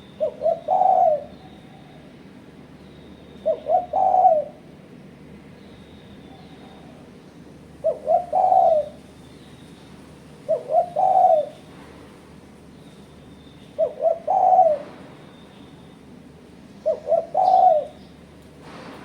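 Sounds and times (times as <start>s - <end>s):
dove cooing: 0.0s - 2.0s, 3.4s - 4.6s, 7.8s - 9.1s, 10.4s - 11.7s, 13.7s - 15.2s, 16.8s - 18.1s.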